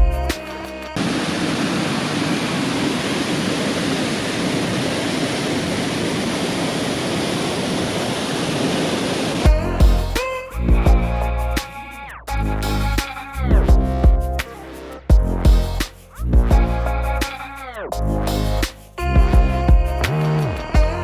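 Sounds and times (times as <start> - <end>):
music: 0.0 - 1.0, 9.5 - 21.0
waterfall rushing: 1.0 - 10.0.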